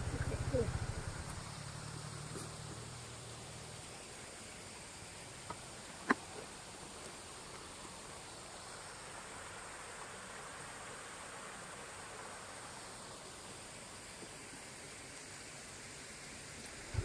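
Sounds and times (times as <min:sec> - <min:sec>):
low engine hum: 0:00.0 - 0:03.8
outdoor ambience hiss: 0:00.0 - 0:17.0.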